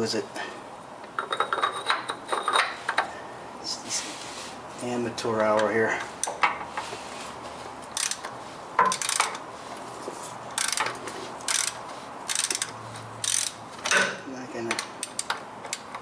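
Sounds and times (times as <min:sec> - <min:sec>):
ratchet clicking: 0:08.0 - 0:08.3, 0:08.9 - 0:09.4, 0:10.6 - 0:13.6.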